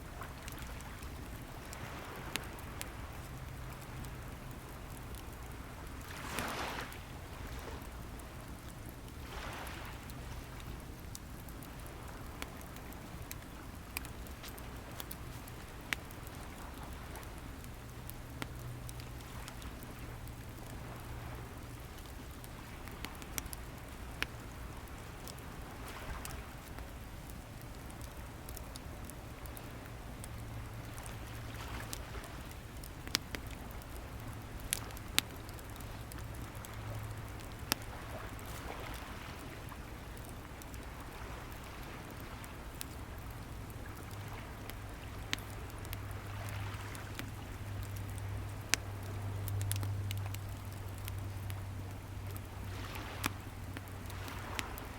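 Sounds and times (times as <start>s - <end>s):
low steady hum: 0.0s - 54.9s
wood fire crackling: 0.0s - 54.9s
waves washing: 5.9s - 7.9s, 52.7s - 53.4s, 54.0s - 54.9s.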